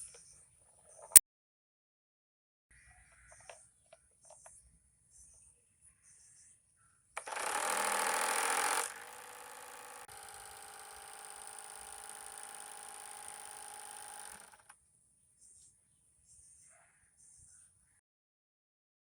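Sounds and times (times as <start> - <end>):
propeller buzzing rattle: 7.2 - 14.7.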